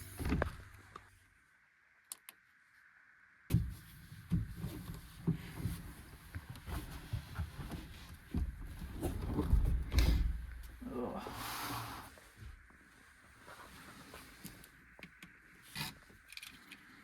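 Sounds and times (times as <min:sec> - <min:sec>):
thump and knocks in small space: 0:00.0 - 0:00.9, 0:03.5 - 0:10.8.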